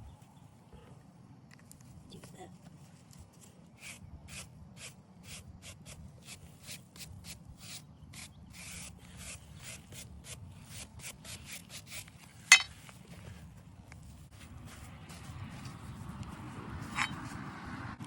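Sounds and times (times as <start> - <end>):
brush scrubbing stone: 3.4 - 13.4.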